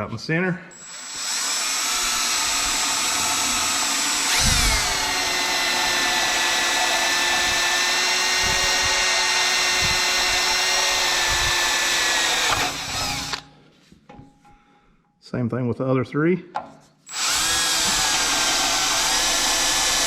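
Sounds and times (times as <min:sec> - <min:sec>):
electric drill drilling into metal: 0:00.8 - 0:13.4, 0:17.1 - 0:20.0.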